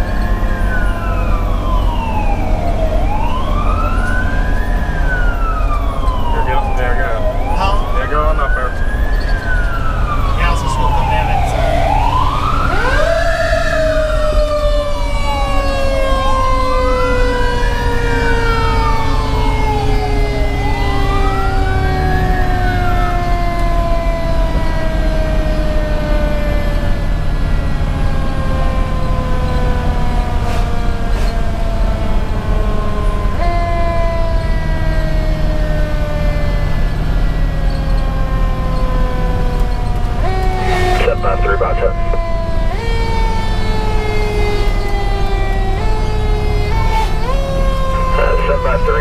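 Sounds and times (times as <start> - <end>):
mechanical siren winding down: 0.0 - 30.4
diesel engine: 0.0 - 49.0
electronic siren wailing: 0.0 - 49.0.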